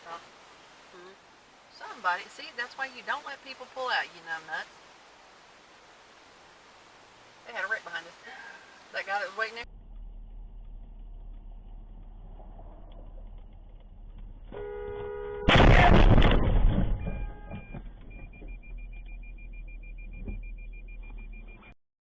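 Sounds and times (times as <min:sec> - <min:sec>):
low engine hum: 0:09.6 - 0:15.4
car horn: 0:14.5 - 0:16.1, 0:16.8 - 0:17.8
collision crash: 0:15.4 - 0:17.8.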